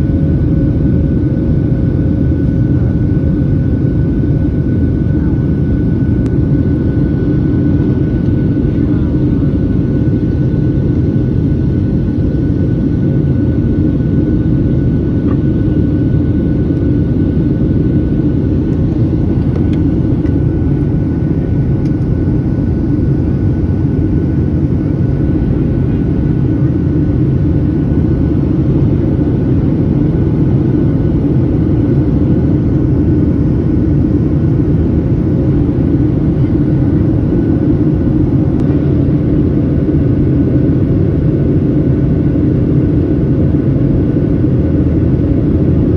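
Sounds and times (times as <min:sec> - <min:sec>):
jet cabin engine rumble: 0:00.0 - 0:45.9.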